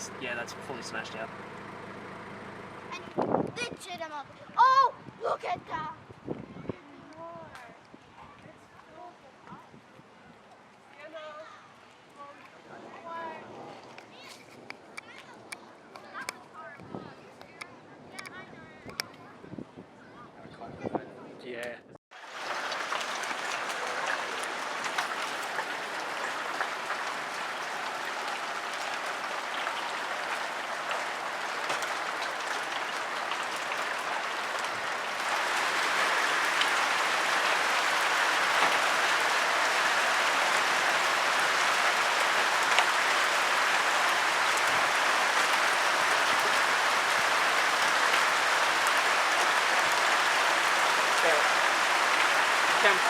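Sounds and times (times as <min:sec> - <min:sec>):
hail and rain pelting down: 0:00.0 - 0:04.8, 0:22.2 - 0:53.0.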